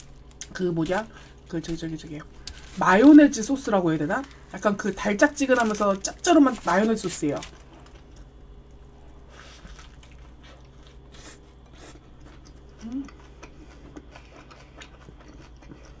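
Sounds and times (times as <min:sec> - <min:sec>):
person chewing: 0:09.3 - 0:16.0
person humming: 0:12.8 - 0:13.2.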